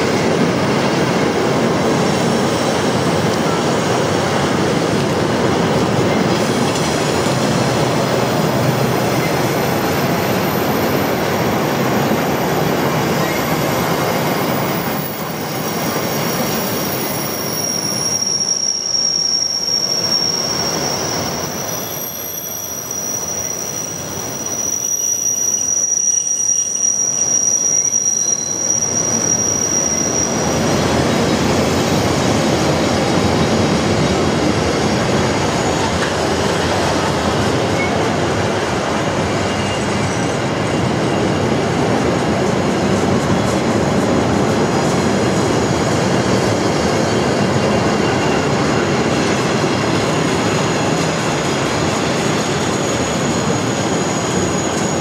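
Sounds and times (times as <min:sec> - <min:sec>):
train wheels rumbling on rail: 0:00.0 - 0:55.0
high-pitched wheel squeal: 0:08.3 - 0:32.2, 0:39.2 - 0:41.4.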